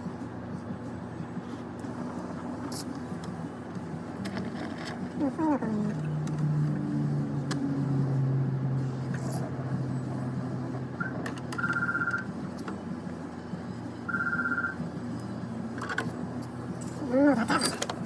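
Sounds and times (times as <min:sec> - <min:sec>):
trilling electronic beeps: 0:11.0 - 0:12.3, 0:14.1 - 0:14.8.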